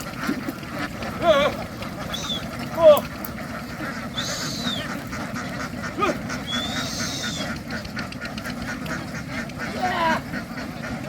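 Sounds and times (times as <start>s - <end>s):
ducks quacking: 0.0s - 11.0s
high whistle-like calls: 2.0s - 2.6s, 4.1s - 5.0s, 6.3s - 7.6s.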